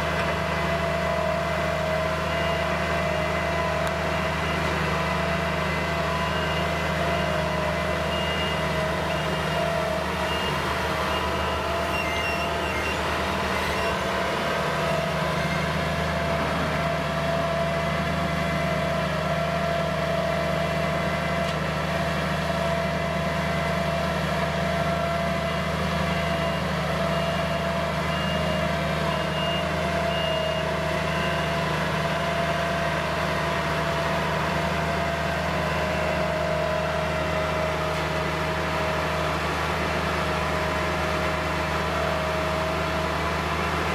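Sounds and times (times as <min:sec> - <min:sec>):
diesel engine running: 0:00.0 - 0:43.9
reversing alarm beeps: 0:02.3 - 0:03.1, 0:05.6 - 0:18.5, 0:24.8 - 0:32.8.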